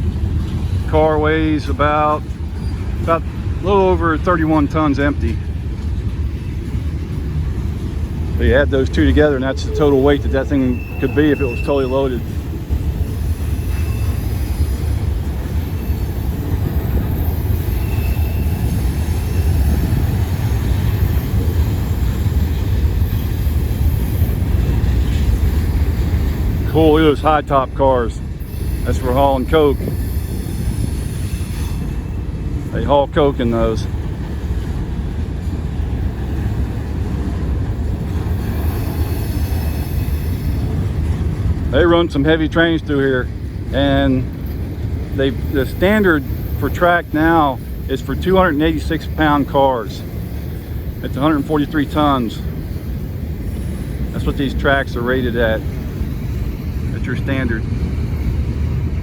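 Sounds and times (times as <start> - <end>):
train wheels rumbling on rail: 0.0 - 59.0
wheel squeal: 9.2 - 27.0, 28.4 - 32.3, 38.1 - 41.1
faint high-pitched squeal: 9.6 - 12.2.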